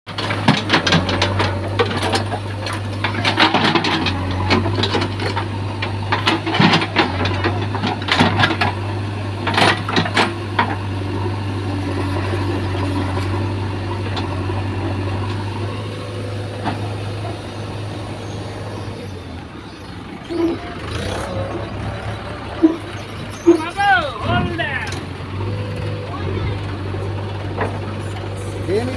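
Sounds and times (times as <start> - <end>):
diesel engine running: 0.1 - 28.9
machine knocks and clanks: 0.2 - 8.8.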